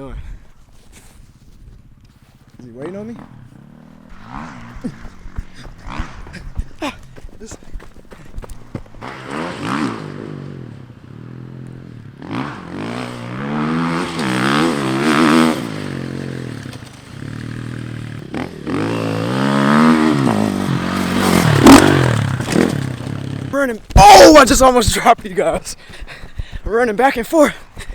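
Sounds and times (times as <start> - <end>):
dirt bike engine revving: 2.8 - 7.2, 8.6 - 26.0.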